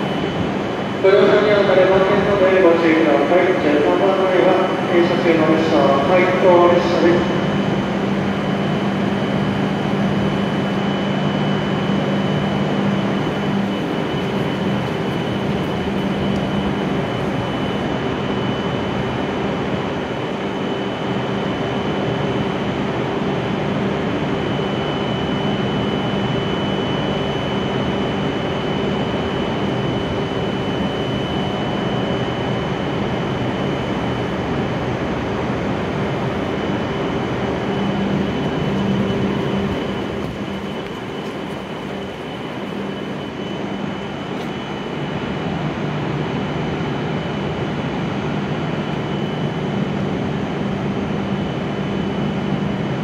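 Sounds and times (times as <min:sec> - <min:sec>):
low hum: 0:00.0 - 0:20.4, 0:21.0 - 0:53.0
thin high whine: 0:00.0 - 0:53.0
train equipment noise: 0:38.1 - 0:43.2.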